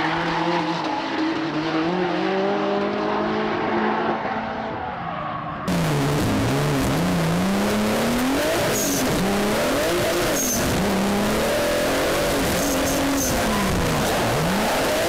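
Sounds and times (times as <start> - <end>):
road and wind rush: 0.0 - 15.0
car engine revving: 5.7 - 15.0.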